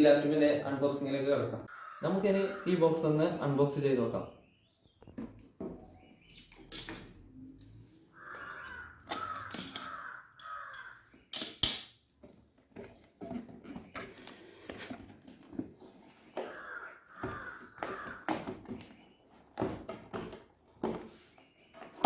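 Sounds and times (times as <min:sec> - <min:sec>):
bird cawing: 0:01.7 - 0:03.0, 0:08.0 - 0:11.2, 0:16.4 - 0:18.5.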